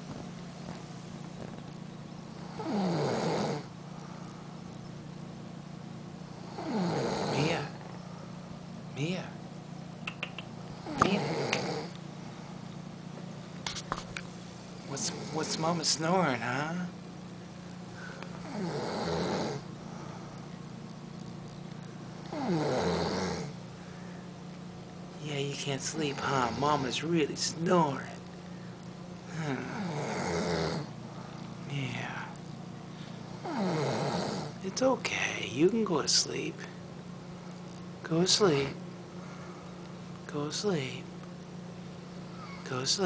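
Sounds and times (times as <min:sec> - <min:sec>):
dog snoring loudly: 0:02.4 - 0:03.8, 0:06.3 - 0:07.8, 0:10.8 - 0:12.0, 0:14.8 - 0:15.8, 0:18.4 - 0:19.7, 0:22.2 - 0:23.6, 0:29.5 - 0:31.0, 0:33.3 - 0:34.6.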